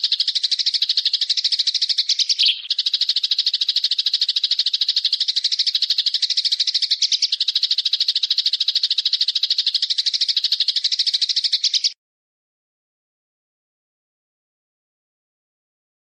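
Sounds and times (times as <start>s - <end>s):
bird rattling trill: 0.0s - 12.0s.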